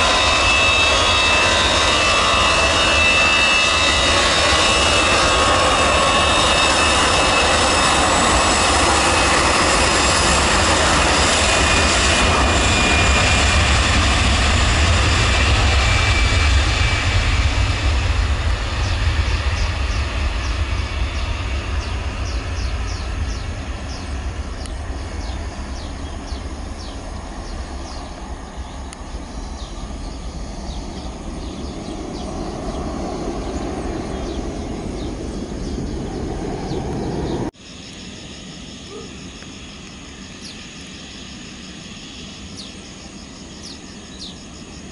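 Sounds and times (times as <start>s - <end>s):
jet engines rumbling and whining: 0.0s - 44.9s.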